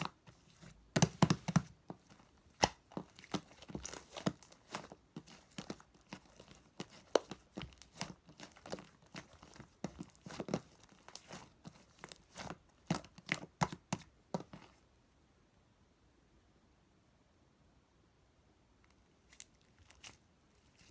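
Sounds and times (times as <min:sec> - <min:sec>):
crinkling and tearing: 0:00.0 - 0:13.5, 0:19.2 - 0:20.9.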